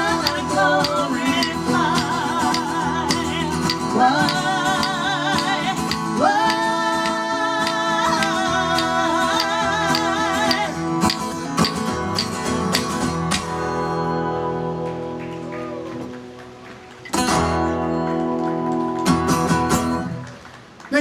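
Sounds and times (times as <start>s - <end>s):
person singing with vibrato: 0.0s - 12.9s
acoustic guitar: 0.0s - 21.0s.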